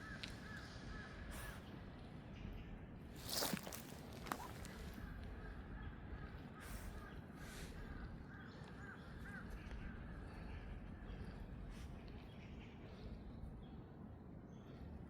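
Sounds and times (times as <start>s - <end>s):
crows cawing: 0.0s - 1.2s.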